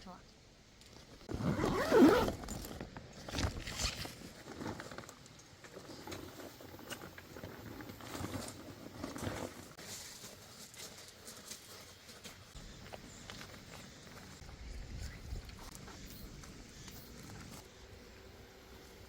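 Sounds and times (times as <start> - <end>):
zipper rasp: 1.3 - 2.7.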